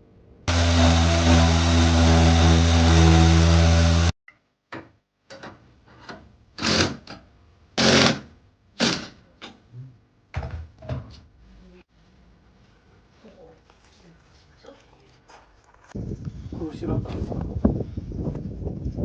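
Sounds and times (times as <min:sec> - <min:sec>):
power tool running: 0:00.5 - 0:04.1, 0:07.8 - 0:08.2.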